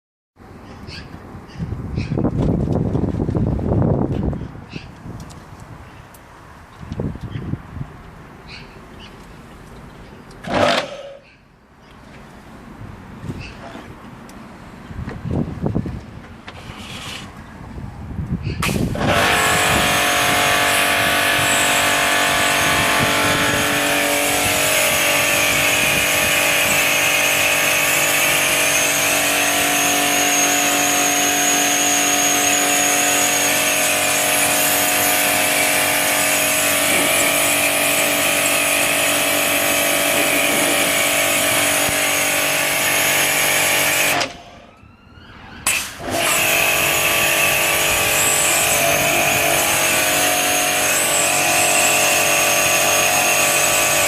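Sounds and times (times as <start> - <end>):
pressure washer running: 18.6 - 44.5, 45.7 - 54.0.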